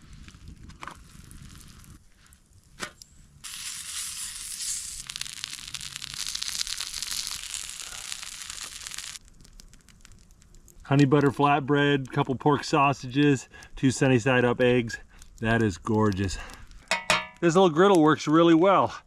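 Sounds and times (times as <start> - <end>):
food sizzling on griddle: 3.4 - 9.2.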